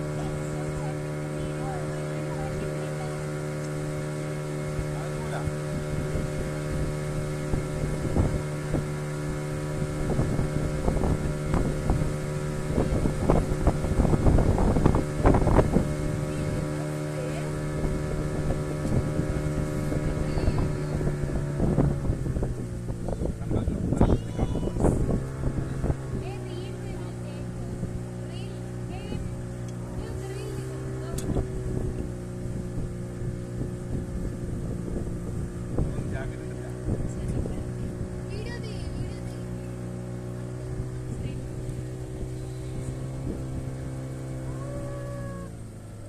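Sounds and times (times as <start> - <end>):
motorboat engine running: 0.0 - 46.0
people talking: 0.1 - 3.3, 4.9 - 5.6, 16.2 - 17.6, 20.0 - 21.2, 23.4 - 25.0, 26.2 - 31.4, 35.9 - 39.8, 41.1 - 41.5.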